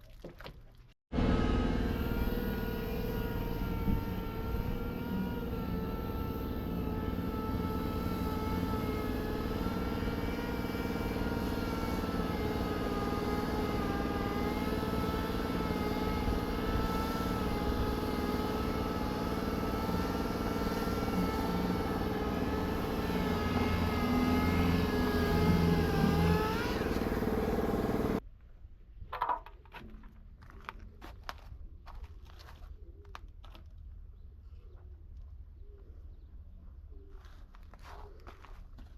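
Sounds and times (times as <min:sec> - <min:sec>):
motor whining: 0:01.2 - 0:28.2.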